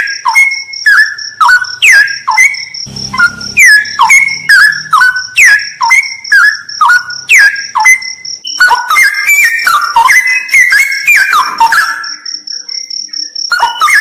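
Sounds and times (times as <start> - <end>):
bird singing whistled phrases: 0.0 - 12.2
fast-pulsing high tone: 2.9 - 7.8.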